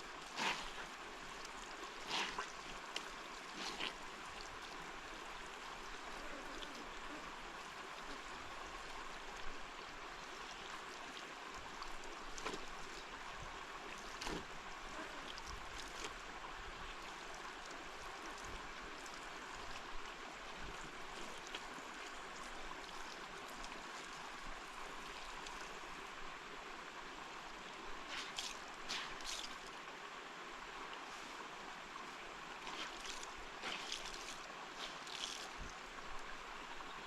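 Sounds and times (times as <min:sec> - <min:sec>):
water rushing: 0:27.0 - 0:37.0.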